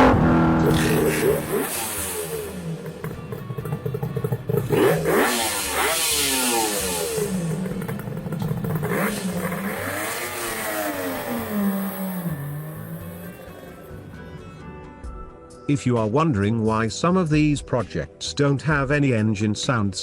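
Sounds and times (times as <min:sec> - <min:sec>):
motorcycle engine revving: 0:00.0 - 0:14.2.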